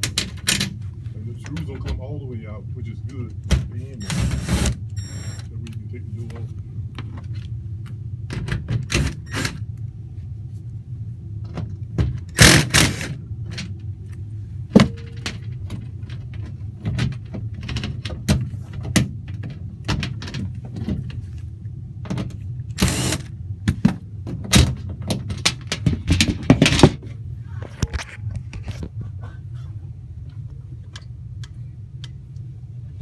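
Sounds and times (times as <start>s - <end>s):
sheet-metal door clicks and rattles: 0.0s - 0.8s, 14.8s - 21.1s.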